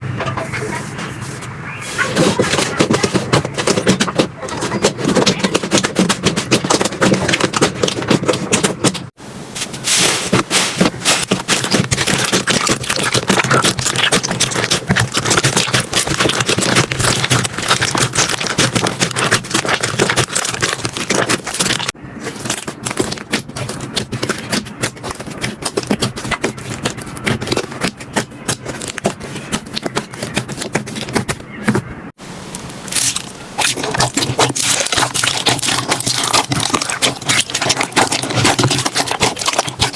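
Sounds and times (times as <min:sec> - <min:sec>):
slime crackling and popping: 0:09.9 - 0:31.2, 0:32.6 - 0:39.9.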